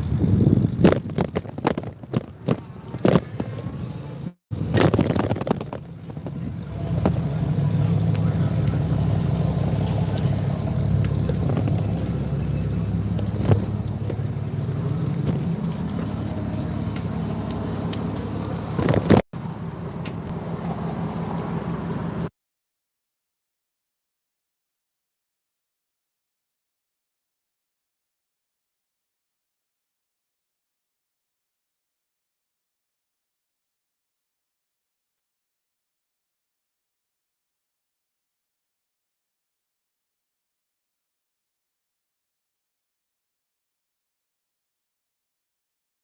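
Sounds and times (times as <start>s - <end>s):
motorbike engine idling: 5.6s - 20.8s
knocks and clicks: 11.0s - 17.1s.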